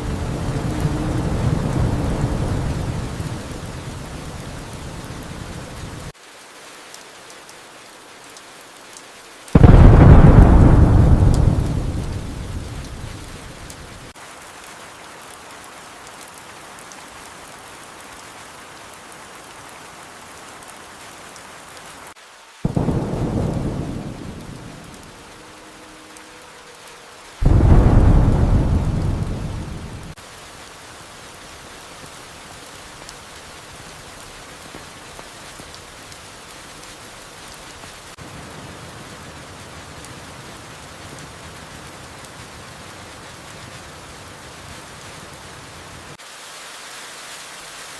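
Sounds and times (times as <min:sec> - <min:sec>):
thunder rumbling: 0:00.0 - 0:06.1, 0:09.5 - 0:14.1, 0:22.6 - 0:26.1, 0:27.4 - 0:30.2, 0:38.2 - 0:46.2
steady rain: 0:00.0 - 0:47.9.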